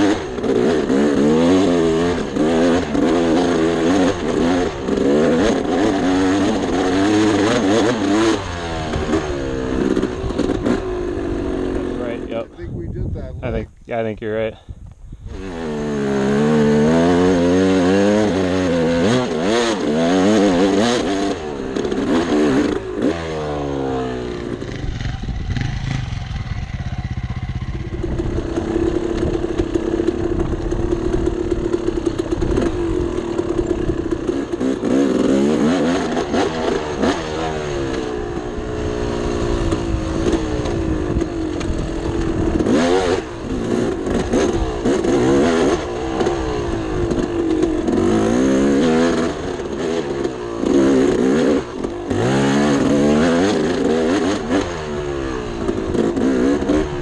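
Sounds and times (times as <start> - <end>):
dirt bike engine revving: 0.0 - 12.6, 15.2 - 57.0
clatter: 24.4 - 57.0.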